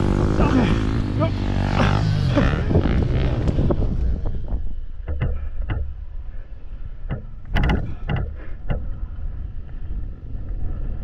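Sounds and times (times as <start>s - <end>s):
wind rumble on microphone: 2.3s - 6.1s, 6.7s - 11.0s
sharp knocks: 5.0s - 6.0s, 7.0s - 8.9s.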